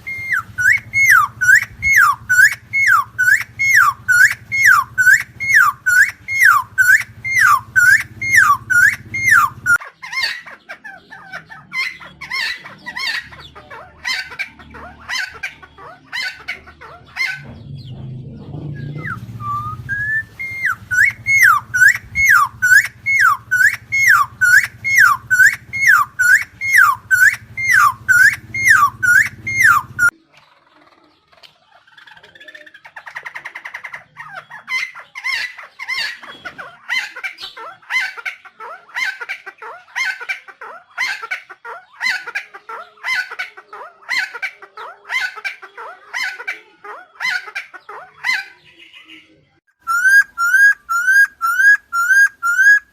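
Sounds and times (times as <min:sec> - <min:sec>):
bird calling repeated notes: 0:00.0 - 0:09.8, 0:18.8 - 0:30.2, 0:49.8 - 0:52.9
bird chattering: 0:00.0 - 0:49.2, 0:49.8 - 0:52.9.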